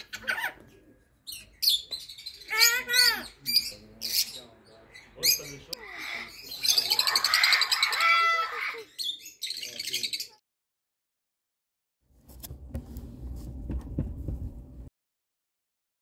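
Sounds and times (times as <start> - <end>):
parrots chirping and squawking: 0.0 - 10.4.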